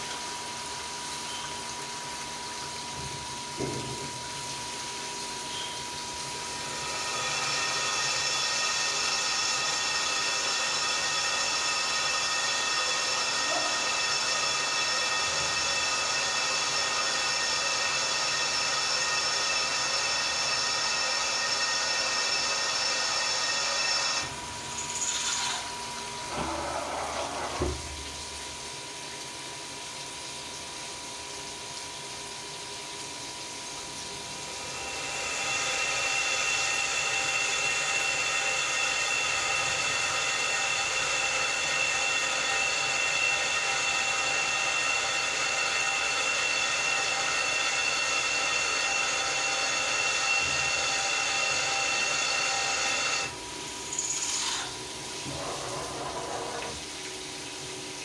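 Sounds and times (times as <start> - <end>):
cnc milling machine whine: 5.1 - 27.9, 34.4 - 56.8.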